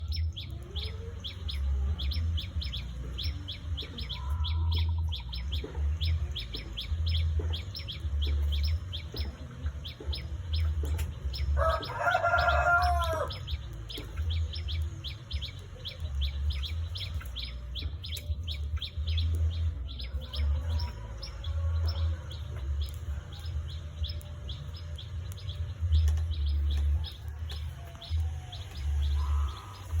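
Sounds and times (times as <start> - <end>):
small birds chirping: 0.0 - 30.0
drawn-out bird call: 25.6 - 30.0.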